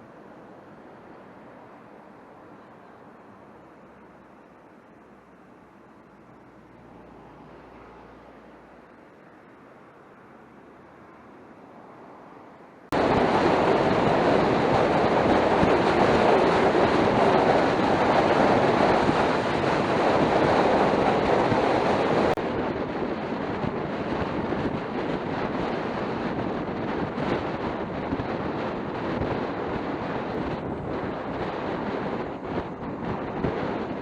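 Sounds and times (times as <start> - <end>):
wind noise on microphone: 12.9 - 34.0.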